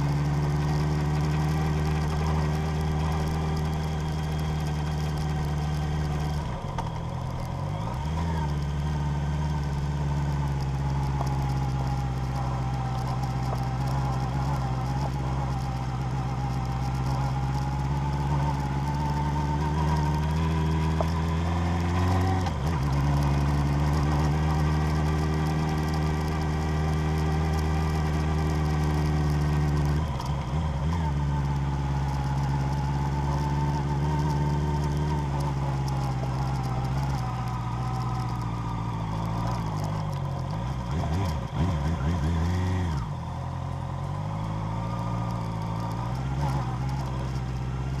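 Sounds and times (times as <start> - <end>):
vehicle engine revving: 0.0 - 48.0.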